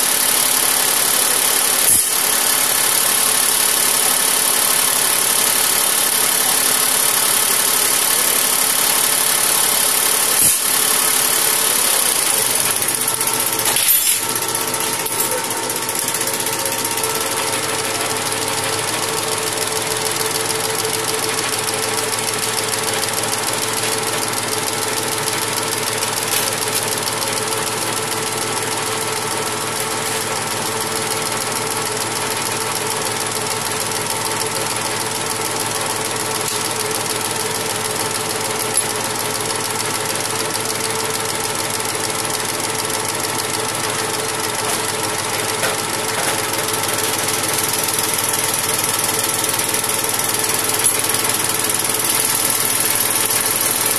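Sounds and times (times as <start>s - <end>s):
steady machine tones: 0.0s - 29.8s
machinery knocking: 0.0s - 53.9s.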